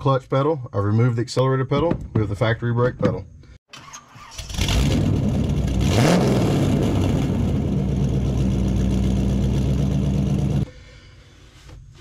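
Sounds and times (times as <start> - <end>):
car engine revving: 4.4 - 10.7.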